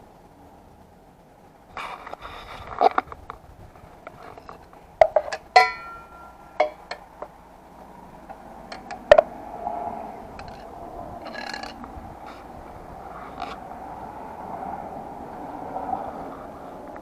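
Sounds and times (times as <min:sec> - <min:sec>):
metal tools clicking and knocking: 0:04.4 - 0:07.3, 0:08.7 - 0:09.2, 0:10.4 - 0:11.9
ringing metallic clink: 0:05.2 - 0:07.1.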